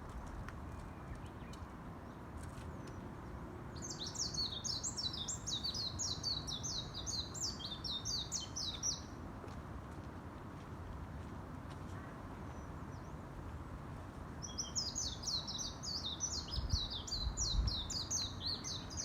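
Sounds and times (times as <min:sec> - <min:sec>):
songbird singing: 0:00.2 - 0:09.2, 0:14.4 - 0:19.0.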